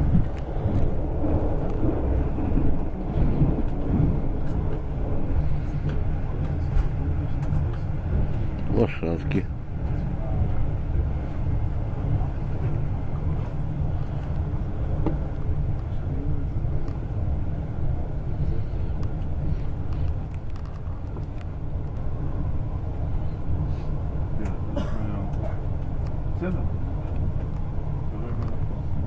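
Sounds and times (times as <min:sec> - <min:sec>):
train rumble inside carriage: 0:00.0 - 0:29.0.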